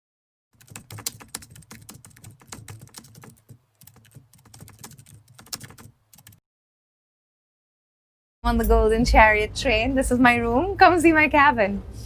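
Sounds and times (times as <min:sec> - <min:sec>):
sharp clicks and taps: 0:00.6 - 0:06.3.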